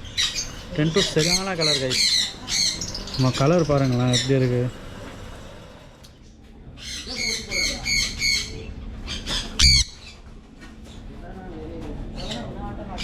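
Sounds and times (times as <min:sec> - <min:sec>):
parrot squawking: 0:00.0 - 0:04.6, 0:06.8 - 0:10.2.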